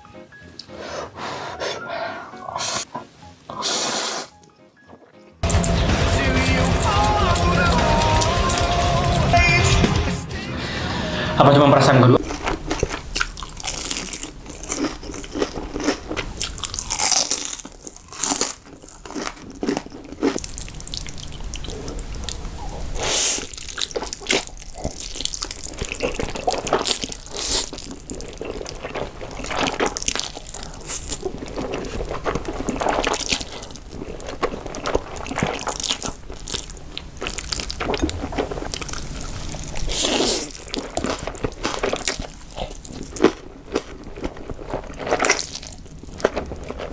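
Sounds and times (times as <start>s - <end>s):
slurping noodles: 0.6s - 4.4s, 21.6s - 36.1s, 37.3s - 43.2s
biting and chewing: 2.4s - 9.3s, 12.2s - 46.9s.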